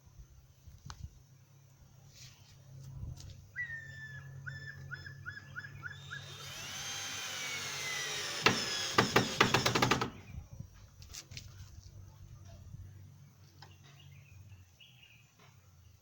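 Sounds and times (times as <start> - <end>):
power drill whining: 5.9 - 10.4
rapid sharp clicks: 6.1 - 10.2.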